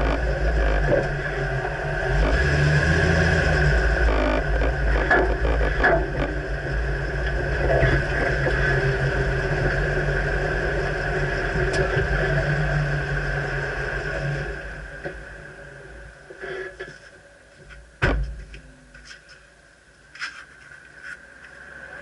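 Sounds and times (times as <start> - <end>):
pickup truck engine running: 0.0 - 15.6
road hum: 0.0 - 22.0.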